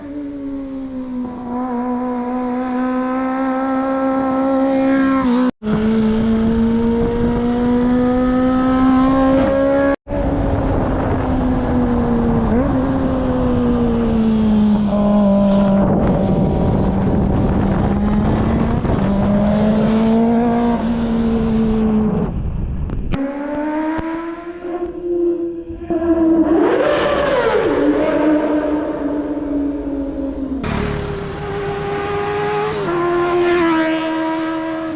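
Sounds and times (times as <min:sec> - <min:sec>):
motorcycle engine at high revs: 0:00.0 - 0:11.7, 0:12.3 - 0:22.4, 0:23.1 - 0:25.8, 0:26.4 - 0:34.9.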